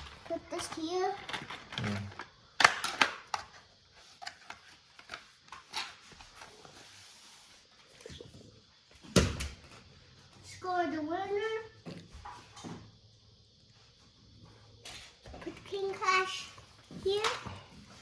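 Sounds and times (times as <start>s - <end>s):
plastic toys clacking: 0.0s - 3.6s.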